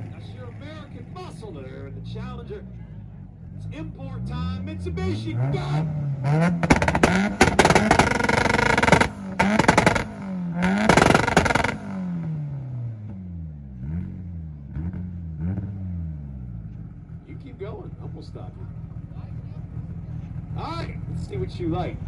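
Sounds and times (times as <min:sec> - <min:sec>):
car engine revving: 0:00.0 - 0:22.0
exhaust pops and bangs: 0:05.6 - 0:12.3.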